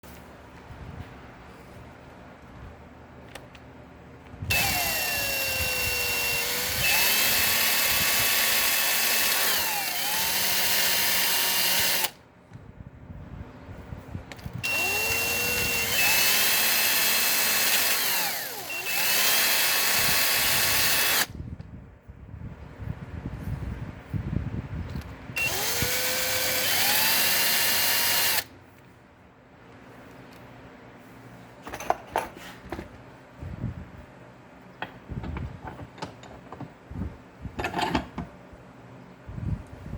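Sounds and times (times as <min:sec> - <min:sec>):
handheld power tool running: 0:04.5 - 0:12.2, 0:14.6 - 0:21.3, 0:25.4 - 0:28.5.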